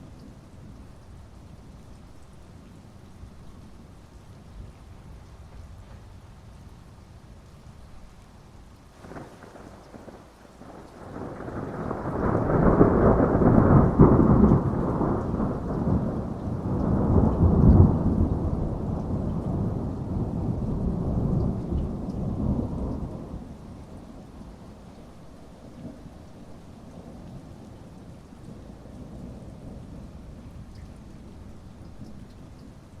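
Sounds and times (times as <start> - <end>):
steady rain: 0.0 - 33.0
thunder crack and rumble: 9.0 - 24.6.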